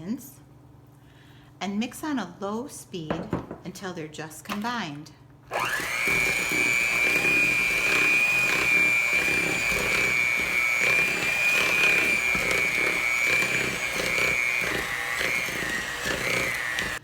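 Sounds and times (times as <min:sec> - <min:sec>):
electric mixer whining: 0:05.5 - 0:17.0.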